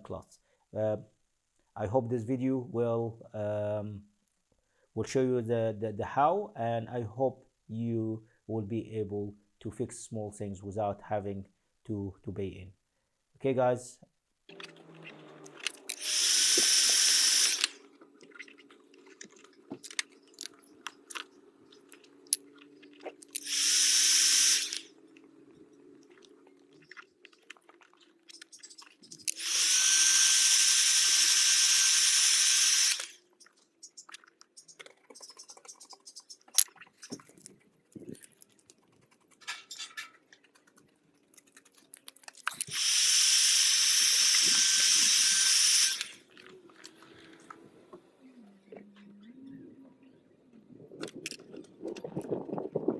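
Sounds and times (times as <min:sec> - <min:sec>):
clicks and crackles: 0:14.5 - 0:23.7, 0:24.4 - 0:29.4, 0:32.9 - 0:42.8, 0:48.7 - 0:52.9
heat gun blowing air: 0:15.9 - 0:17.8, 0:23.4 - 0:24.9, 0:29.3 - 0:33.2, 0:42.8 - 0:46.2.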